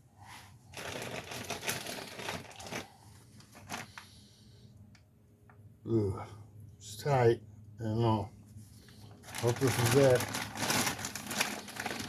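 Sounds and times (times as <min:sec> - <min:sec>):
crinkling handling noise: 0:00.2 - 0:04.4, 0:08.4 - 0:12.0.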